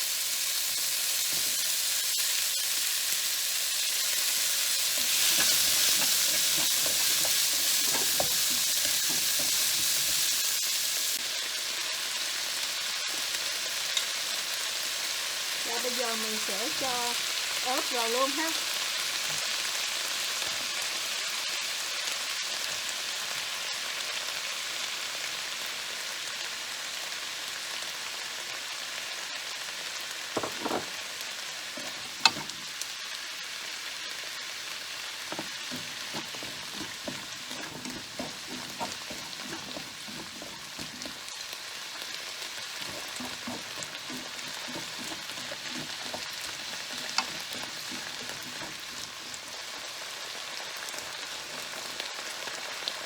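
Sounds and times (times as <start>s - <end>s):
vegetables sizzling in oil: 0.0s - 53.0s
utensil knocking against pan: 5.0s - 10.4s, 30.4s - 31.0s, 31.8s - 32.6s, 35.3s - 41.2s, 42.8s - 49.3s.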